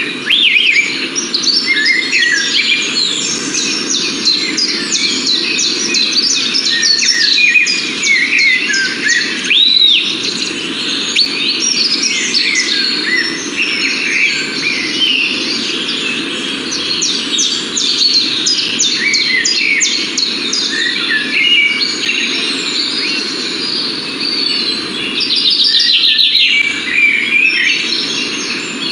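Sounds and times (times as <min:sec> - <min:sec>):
arched bird whistle: 0:00.0 - 0:16.0, 0:16.8 - 0:28.9
small birds chirping: 0:00.0 - 0:28.9.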